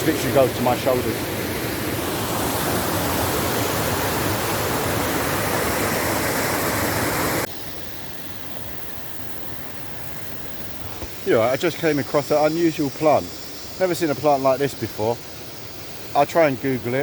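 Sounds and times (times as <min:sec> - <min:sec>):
waterfall rushing: 0:00.0 - 0:07.5.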